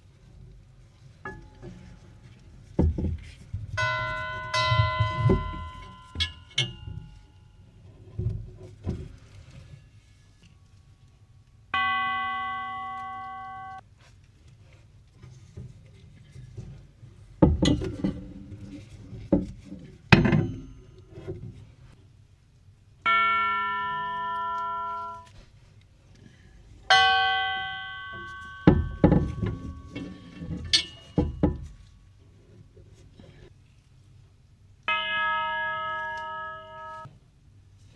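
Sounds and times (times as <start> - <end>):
sharp knocks and clunks: 2.7 - 7.1, 17.4 - 18.3, 19.2 - 21.6, 28.3 - 31.8
clock chime tubes ringing: 3.8 - 6.6, 11.8 - 13.8, 23.1 - 25.3, 26.9 - 30.0, 34.9 - 37.1.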